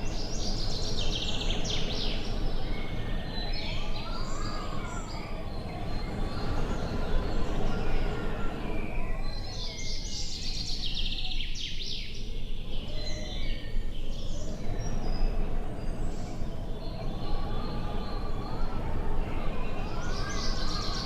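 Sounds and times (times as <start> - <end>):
small birds chirping: 0.0 - 21.0
wind rumbling on microphone: 12.2 - 21.0.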